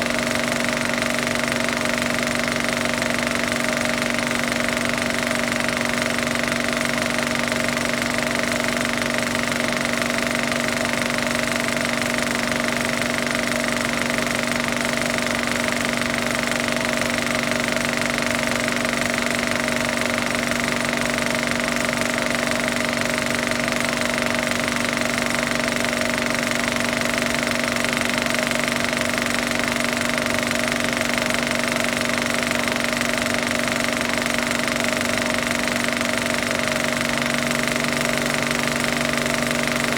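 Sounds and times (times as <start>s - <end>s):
machine rattling and humming: 0.0s - 39.9s.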